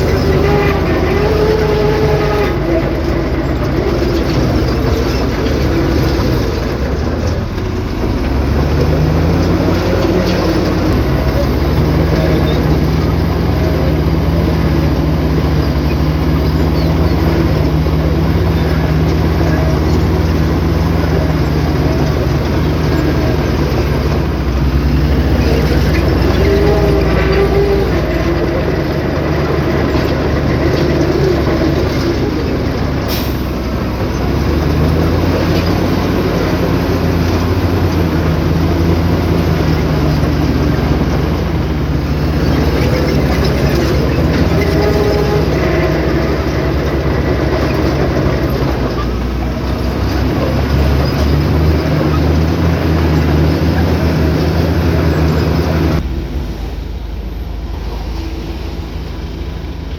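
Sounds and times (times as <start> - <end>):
diesel engine under load: 0.0 - 59.9.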